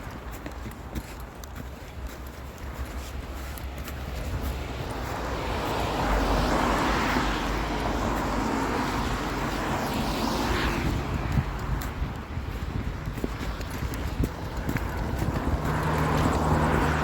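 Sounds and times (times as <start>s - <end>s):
vehicle driving past: 14.7s - 17.0s.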